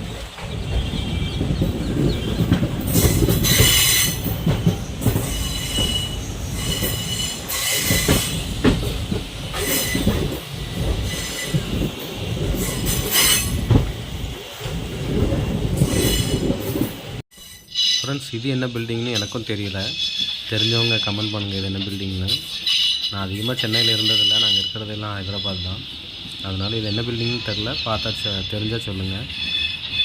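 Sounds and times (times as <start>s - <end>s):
train wheels rumbling: 0.0s - 30.0s
high-pitched wheel squeals: 17.4s - 18.4s, 19.2s - 21.6s.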